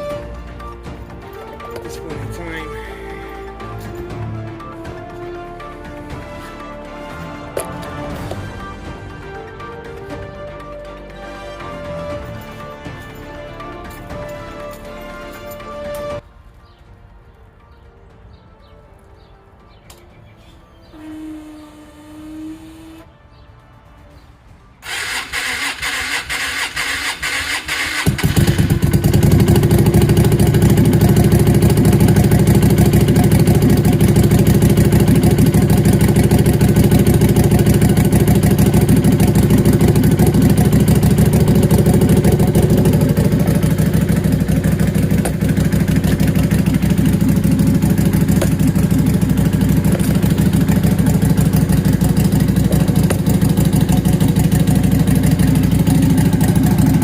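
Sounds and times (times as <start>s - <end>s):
starter motor cranking: 24.8s - 57.0s
motorcycle engine running: 25.1s - 57.0s.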